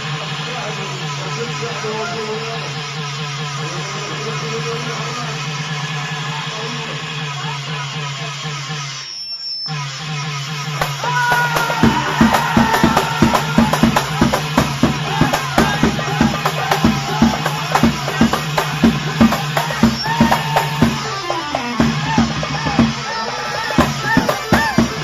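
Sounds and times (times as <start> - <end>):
percussion beat: 10.5 - 25.0.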